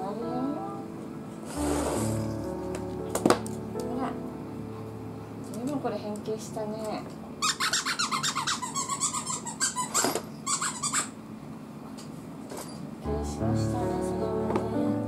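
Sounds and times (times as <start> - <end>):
background music: 0.0 - 5.8, 13.0 - 15.0
squeaky toy squeaking: 7.4 - 11.2.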